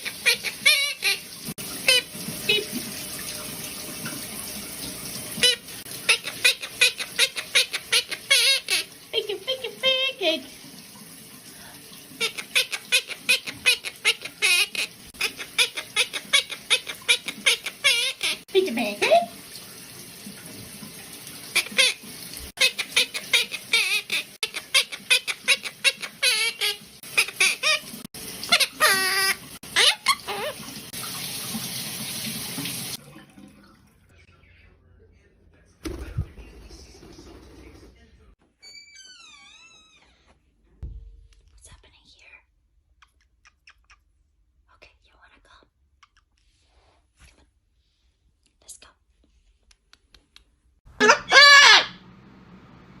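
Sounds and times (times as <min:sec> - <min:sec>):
parrot calling: 0:00.0 - 0:02.8, 0:05.4 - 0:08.9, 0:12.2 - 0:18.4, 0:21.5 - 0:30.7, 0:50.9 - 0:52.1
tap running water: 0:00.0 - 0:34.1.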